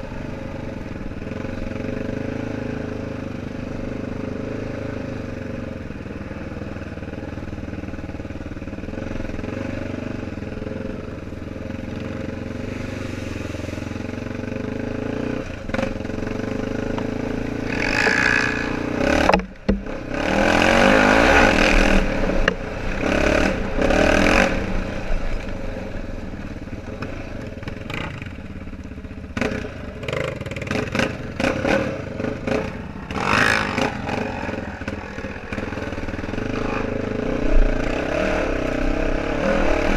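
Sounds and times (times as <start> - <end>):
atv engine running: 0.0 - 39.9
bumps and clatter: 19.2 - 20.0.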